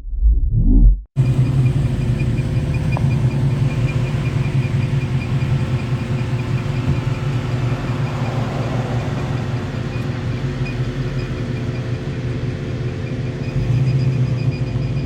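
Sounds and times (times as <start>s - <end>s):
pickup engine idling: 1.2s - 15.0s.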